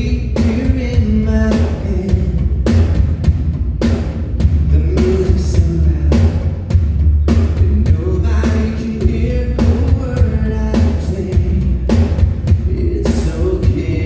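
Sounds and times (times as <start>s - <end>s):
person singing: 12.7s - 14.0s.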